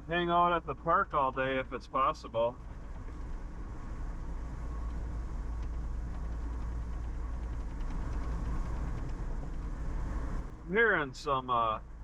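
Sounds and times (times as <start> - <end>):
car interior road noise: 2.4 - 12.0.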